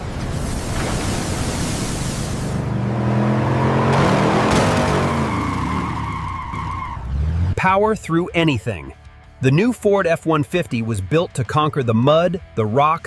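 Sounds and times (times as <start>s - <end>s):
truck engine revving: 0.0s - 8.0s.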